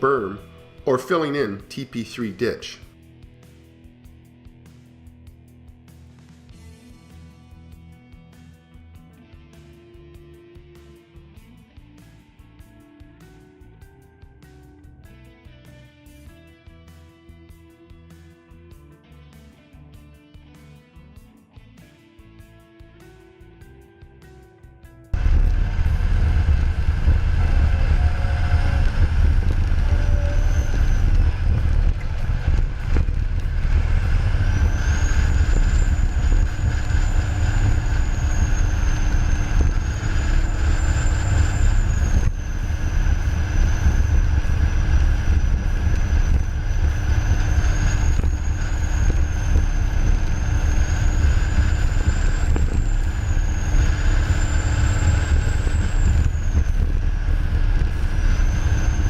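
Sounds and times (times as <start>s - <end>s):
bulldozer diesel engine under load: 25.2s - 59.0s
thin high wavering whine: 25.2s - 59.0s.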